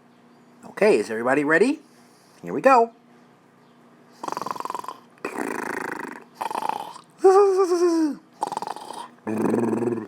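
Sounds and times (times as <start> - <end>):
man making animal-like noises: 4.2 - 10.0.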